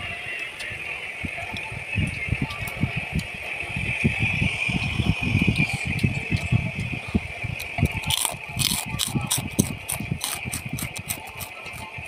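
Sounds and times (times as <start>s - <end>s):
steady high-pitched hum: 0.0s - 12.0s
person chewing wetly: 7.6s - 11.9s.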